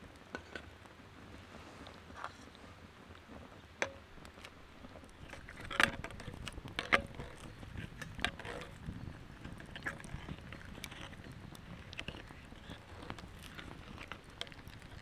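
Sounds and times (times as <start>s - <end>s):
gear knocking and clicking: 5.2s - 15.0s.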